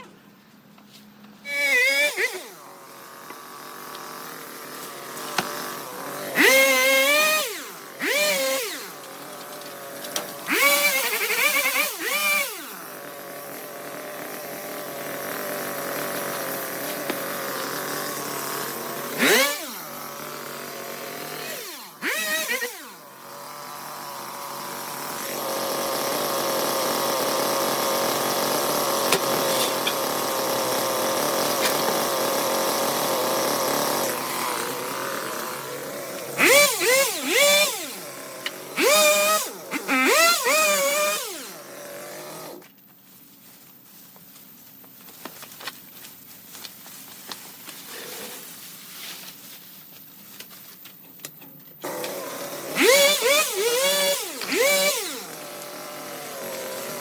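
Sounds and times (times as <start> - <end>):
small petrol engine revving: 1.5 - 2.7, 3.3 - 42.5, 51.8 - 57.0.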